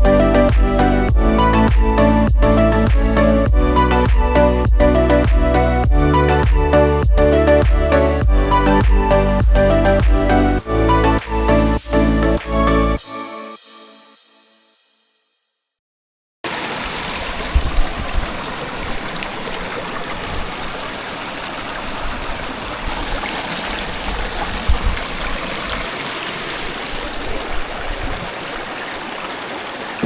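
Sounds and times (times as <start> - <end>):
brief low thumps: 0.0 - 10.3
water rushing over rocks: 16.5 - 30.0.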